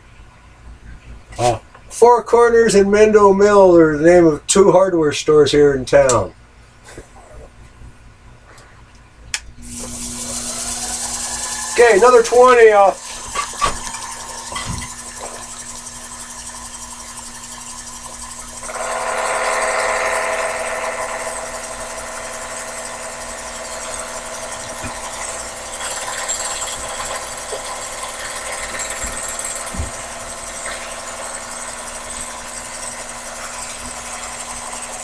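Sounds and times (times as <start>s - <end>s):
lathe motor hum: 9.6s - 35.0s
ringing whine of cutting: 9.6s - 35.0s.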